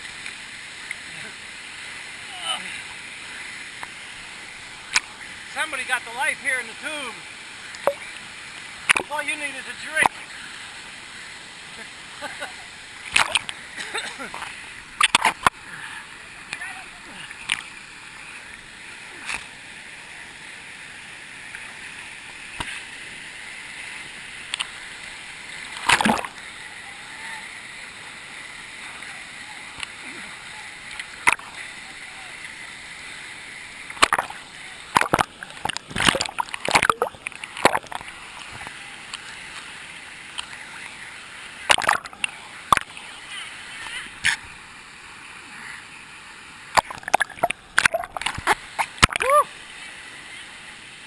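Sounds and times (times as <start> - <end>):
water splashing: 0.0 - 51.0
waterfall rushing: 0.0 - 51.0.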